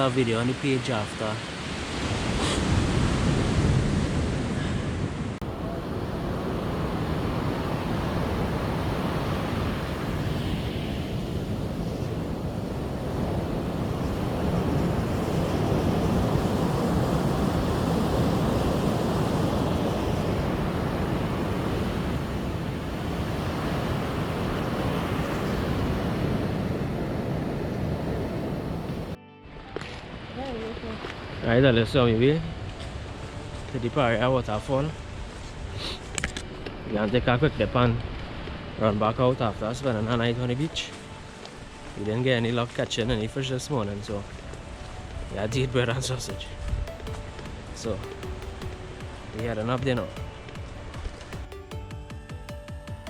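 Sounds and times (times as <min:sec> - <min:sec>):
surf washing onto beach: 0:00.0 - 0:29.2, 0:36.7 - 0:51.7
wind buffeting microphone: 0:02.2 - 0:29.2.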